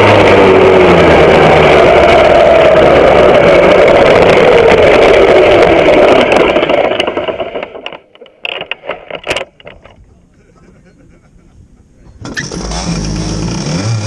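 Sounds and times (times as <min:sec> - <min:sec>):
kart two-stroke engine running: 0:00.0 - 0:08.5, 0:12.2 - 0:14.0.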